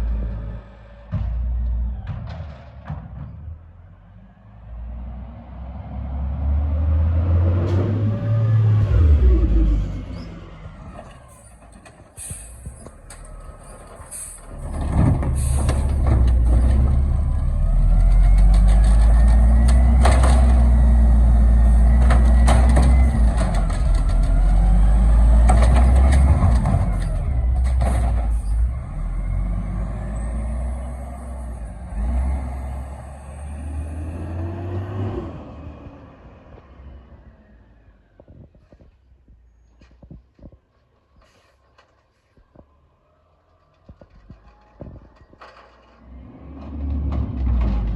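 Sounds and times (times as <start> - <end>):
garbage truck engine revving: 0.0 - 37.9, 45.4 - 47.9
metal clanks and knocks: 1.0 - 3.7.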